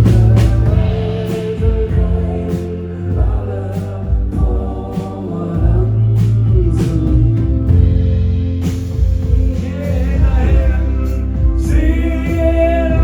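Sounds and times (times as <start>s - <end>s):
live band music with vocals: 0.0s - 13.0s.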